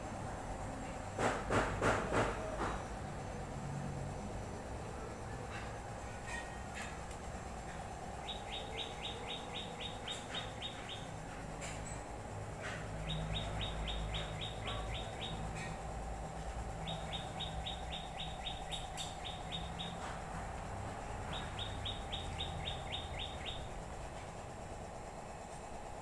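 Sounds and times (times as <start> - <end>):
steady low hum: 0.0 - 26.0
bird chirping rapidly: 8.1 - 11.4, 12.9 - 16.0, 16.6 - 20.3, 21.0 - 24.1.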